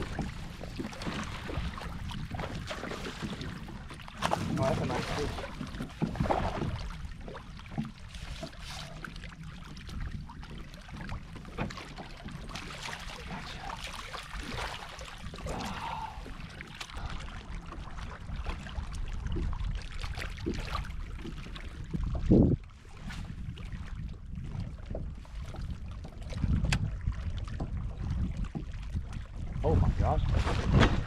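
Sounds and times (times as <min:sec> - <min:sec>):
wind on microphone: 0:00.0 - 0:07.9, 0:15.2 - 0:31.0
water sloshing against kayak hull: 0:00.0 - 0:31.0.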